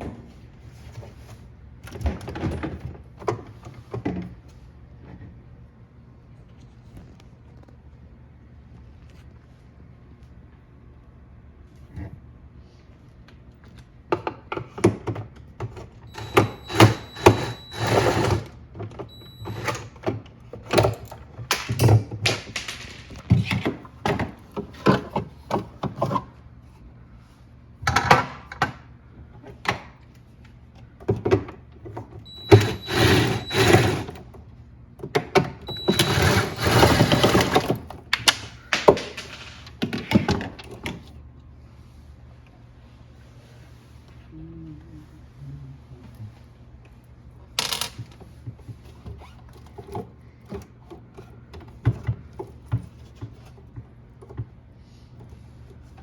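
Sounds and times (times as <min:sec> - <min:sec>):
clicks and knocks of parts handled: 0:37.6 - 0:41.0.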